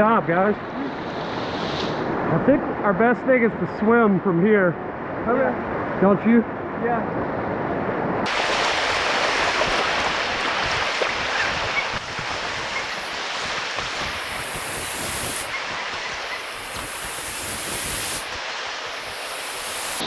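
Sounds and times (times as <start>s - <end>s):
river rushing over rocks: 8.3s - 20.0s.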